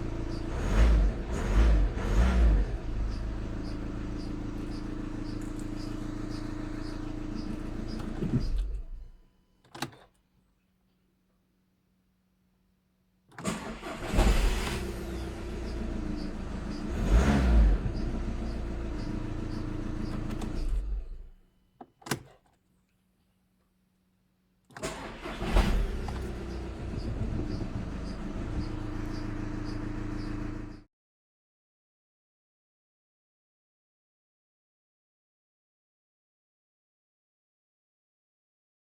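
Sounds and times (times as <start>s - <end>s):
diesel engine starting and idling: 0.0s - 9.2s, 13.4s - 21.4s, 24.8s - 30.8s.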